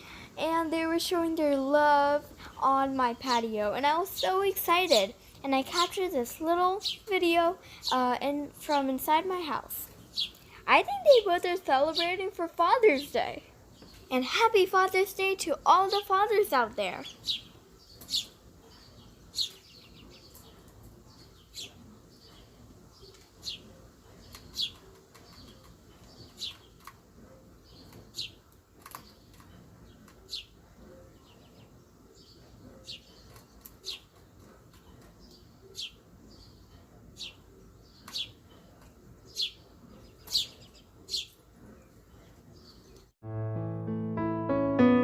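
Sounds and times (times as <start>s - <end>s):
small birds chirping: 0.0s - 43.2s
piano music: 43.2s - 45.0s.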